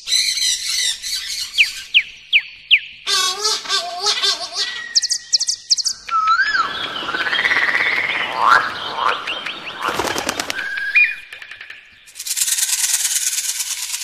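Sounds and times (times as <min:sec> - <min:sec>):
bird whistling: 0:00.0 - 0:11.4
buzzy bird rattle: 0:09.8 - 0:14.0.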